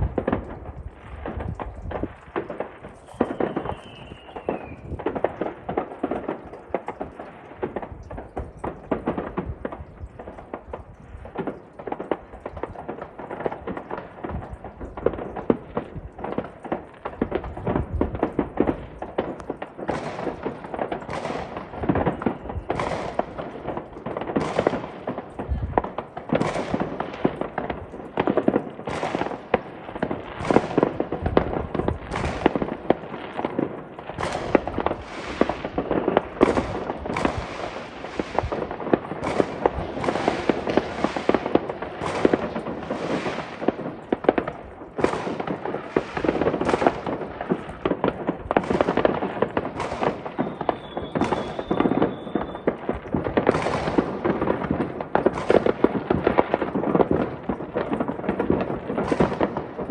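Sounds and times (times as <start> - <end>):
fireworks crackling and banging: 0.0 - 59.9
firework whistle: 3.0 - 5.0, 22.1 - 23.2, 49.8 - 52.8.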